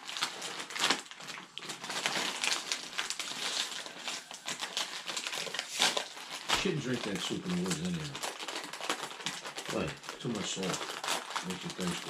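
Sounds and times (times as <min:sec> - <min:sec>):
steady rain patter: 0:06.5 - 0:08.2, 0:09.7 - 0:12.0.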